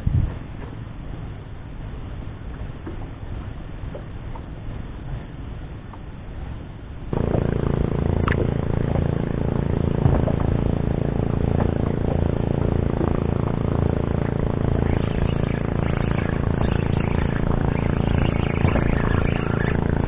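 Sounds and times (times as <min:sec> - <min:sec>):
boat engine humming: 0:06.1 - 0:20.0.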